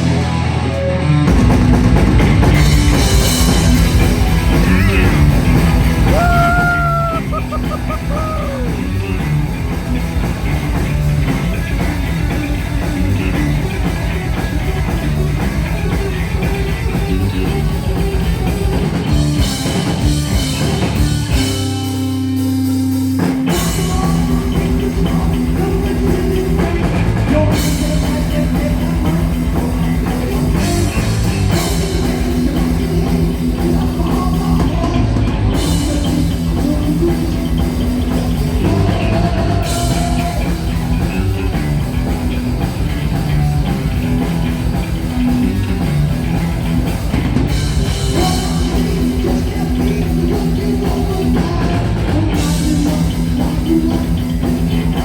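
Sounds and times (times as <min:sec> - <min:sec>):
distorted electric guitars: 0:00.0 - 0:55.0
drum kit: 0:00.0 - 0:55.0.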